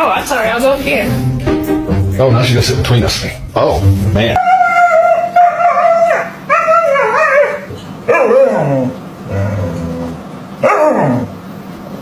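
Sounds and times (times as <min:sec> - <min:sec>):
dog whining and yowling: 0:04.4 - 0:11.4.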